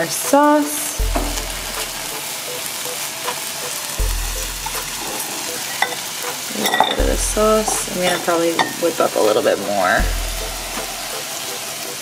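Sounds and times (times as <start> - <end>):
food sizzling in a wok: 0.0 - 12.0
low rumble: 1.0 - 2.1, 4.0 - 5.1, 7.0 - 8.2, 10.0 - 11.1.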